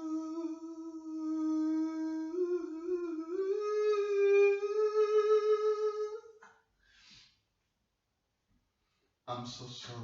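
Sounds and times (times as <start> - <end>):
person singing a long note: 0.0 - 6.2.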